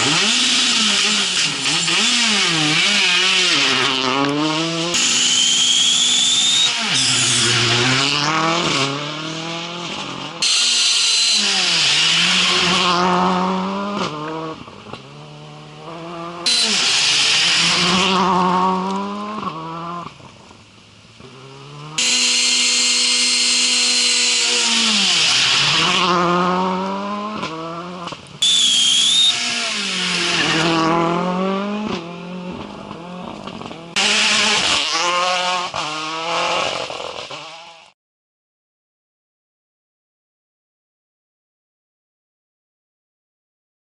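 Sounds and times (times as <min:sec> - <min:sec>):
rally car engine revving: 0:00.0 - 0:38.0
loud hissing rush: 0:16.5 - 0:17.9.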